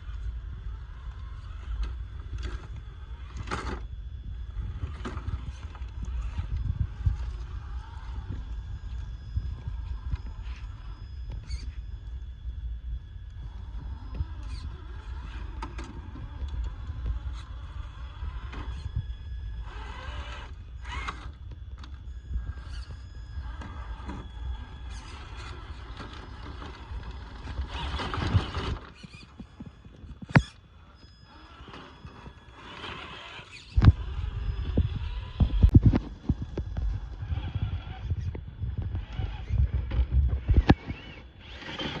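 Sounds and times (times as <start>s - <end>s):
toy trucks clattering over rough ground: 0.0s - 9.0s, 19.6s - 38.0s, 39.0s - 42.0s
low rumble: 0.0s - 30.2s, 30.8s - 41.6s
electric motor and gear whine: 0.0s - 42.0s.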